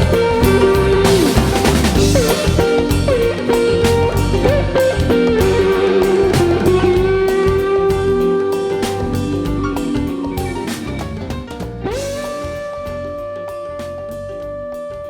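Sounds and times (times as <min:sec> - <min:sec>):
blues-rock band playing: 0:00.0 - 0:15.0
electric guitar bent notes: 0:00.0 - 0:15.0.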